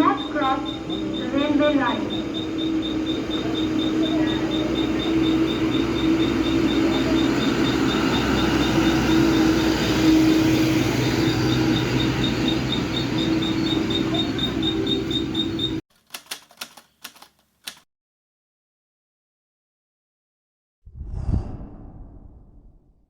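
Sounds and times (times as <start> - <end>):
diesel truck engine running: 0.0 - 15.8
fast regular ticking: 11.2 - 17.8
short clicks: 16.0 - 17.8.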